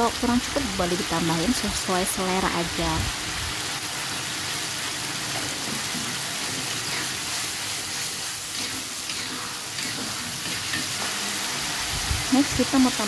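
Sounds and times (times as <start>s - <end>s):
spice paste sizzling in a wok: 0.0s - 13.0s
metal spatula stirring: 5.4s - 11.1s.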